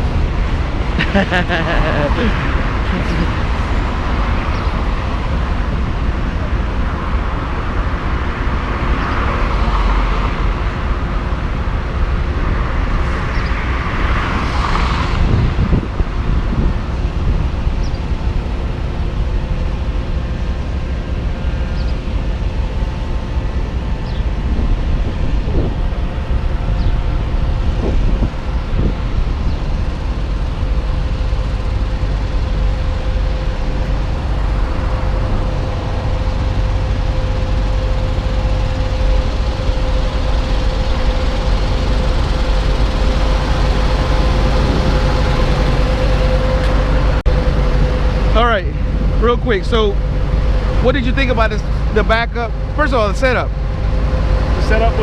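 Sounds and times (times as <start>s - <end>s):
truck diesel engine rumbling: 0.0s - 8.8s, 15.2s - 55.0s.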